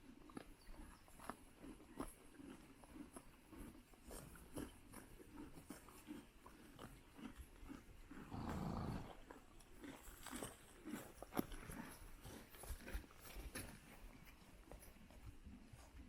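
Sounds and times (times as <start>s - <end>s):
horses chewing grass: 0.0s - 16.0s
horse breathy burst: 8.2s - 9.2s.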